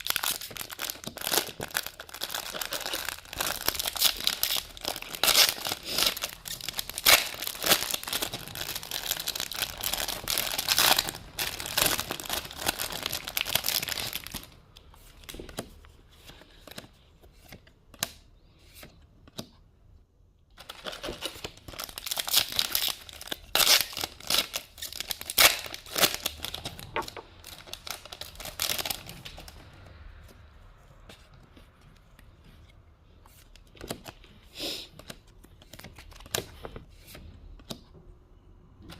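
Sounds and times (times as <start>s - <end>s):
plastic wrapper crinkling and tearing: 0.0s - 15.5s, 20.6s - 29.6s.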